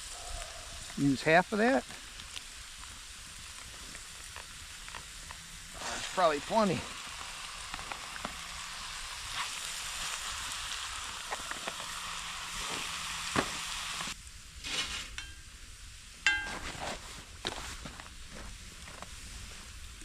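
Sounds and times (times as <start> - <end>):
vegetables sizzling in oil: 0.0 - 16.2
light metal clinks: 16.3 - 16.8
short metallic ring: 16.3 - 16.9.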